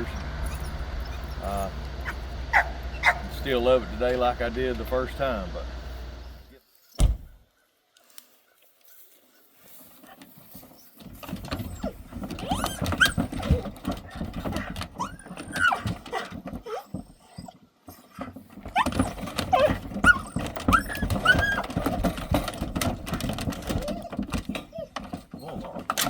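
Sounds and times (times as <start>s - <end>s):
dogs whining and yelping: 0.0s - 3.3s, 10.1s - 26.0s
knocks and scuffling: 8.6s - 26.0s.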